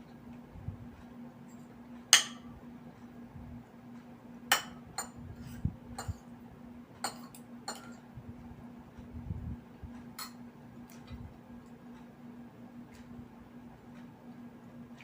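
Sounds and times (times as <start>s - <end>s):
faint steady hum: 0.0s - 15.0s
cutlery clinking on a plate: 7.0s - 8.0s.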